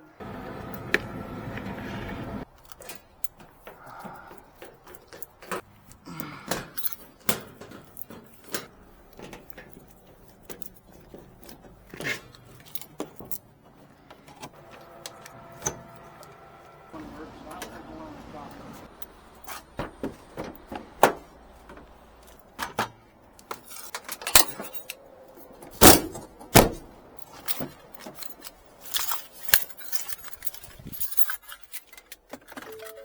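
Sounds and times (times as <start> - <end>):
metallic clinks and knocks: 2.5 - 13.6, 27.2 - 33.0.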